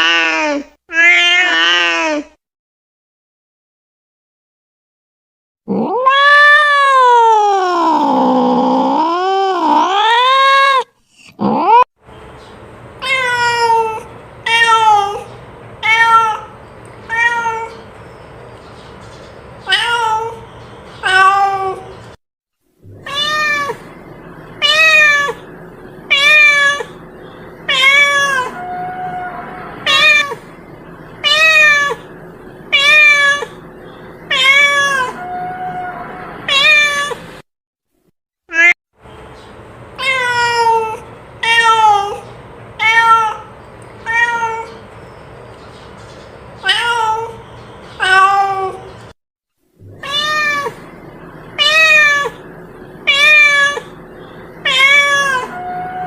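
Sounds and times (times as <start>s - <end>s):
cat meowing: 0.0s - 2.3s, 5.7s - 11.8s, 13.0s - 17.8s, 19.6s - 20.4s, 21.0s - 21.9s, 22.9s - 24.0s, 24.6s - 25.4s, 26.1s - 27.0s, 27.7s - 30.5s, 31.2s - 32.1s, 32.7s - 33.6s, 34.3s - 37.2s, 38.5s - 38.8s, 40.0s - 44.8s, 46.6s - 47.4s, 48.0s - 48.9s, 49.9s - 50.9s, 51.6s - 54.0s, 54.6s - 56.0s
cat yowling: 0.0s - 2.3s, 5.7s - 11.9s, 13.0s - 17.8s, 19.6s - 20.4s, 21.0s - 21.9s, 22.9s - 24.0s, 24.6s - 25.5s, 26.1s - 27.0s, 27.7s - 30.5s, 31.2s - 32.1s, 32.7s - 33.6s, 34.3s - 37.2s, 38.5s - 38.8s, 40.0s - 42.2s, 42.8s - 44.8s, 46.6s - 47.4s, 48.0s - 48.9s, 49.9s - 51.0s, 51.6s - 54.0s, 54.6s - 56.0s.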